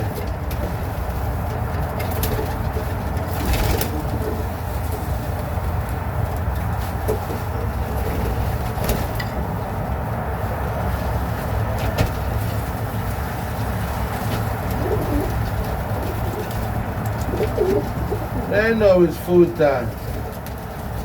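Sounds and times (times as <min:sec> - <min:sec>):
pigeons cooing: 0:14.3 - 0:18.6.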